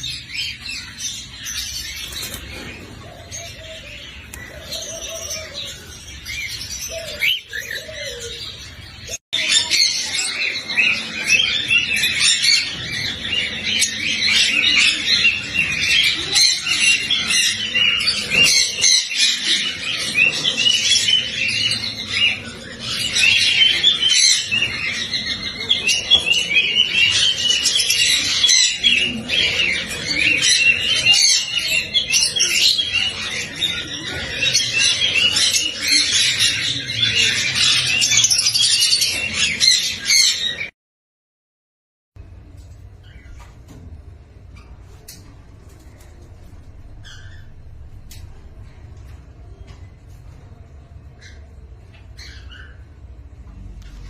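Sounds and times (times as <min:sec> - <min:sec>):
cockatiels chirping: 0:00.0 - 0:40.7, 0:51.2 - 0:52.9.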